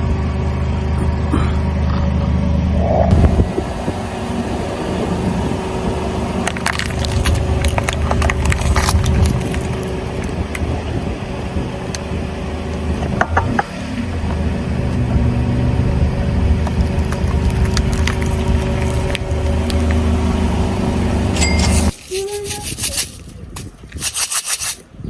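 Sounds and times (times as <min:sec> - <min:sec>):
car engine running: 0:00.0 - 0:22.0
tyres crushing drink containers: 0:06.4 - 0:10.4, 0:16.6 - 0:20.0, 0:21.7 - 0:24.9.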